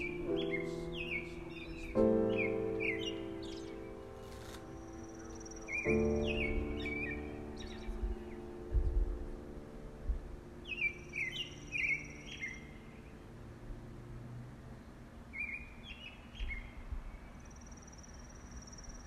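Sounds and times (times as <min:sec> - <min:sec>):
bird chirping: 0:00.0 - 0:10.0, 0:10.6 - 0:13.5, 0:14.8 - 0:19.0
held music chord: 0:00.0 - 0:14.6.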